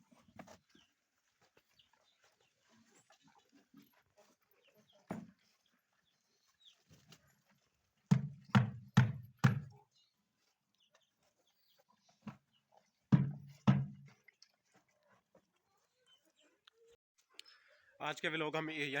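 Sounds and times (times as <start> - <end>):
sharp knocks: 8.1 - 9.7, 13.1 - 14.1.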